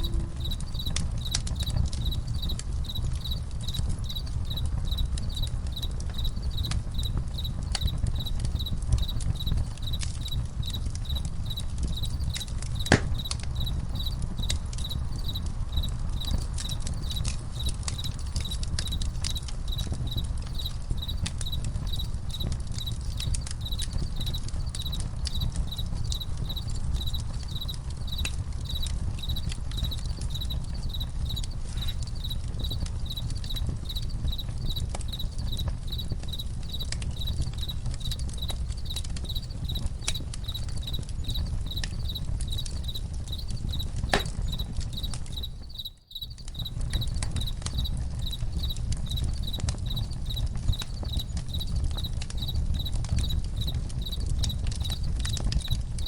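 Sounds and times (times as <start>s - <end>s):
campfire crackling and popping: 0.0s - 56.0s
crickets chirping: 0.0s - 56.0s.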